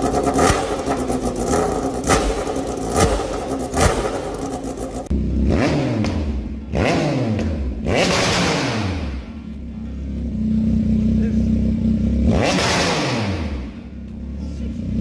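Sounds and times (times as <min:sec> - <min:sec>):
exhaust pops: 0:00.0 - 0:05.1
motorcycle engine revving: 0:00.0 - 0:15.0.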